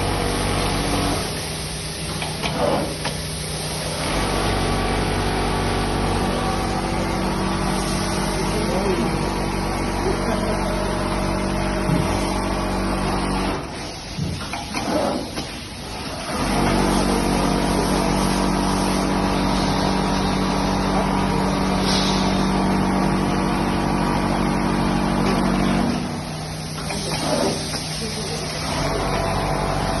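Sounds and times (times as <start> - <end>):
sewing machine running: 0.0 - 3.0, 3.7 - 13.8, 14.7 - 21.8, 28.4 - 30.0.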